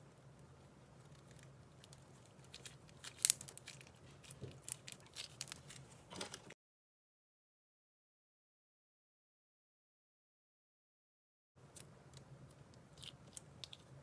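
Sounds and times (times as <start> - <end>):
slime crackling and popping: 1.1 - 5.8.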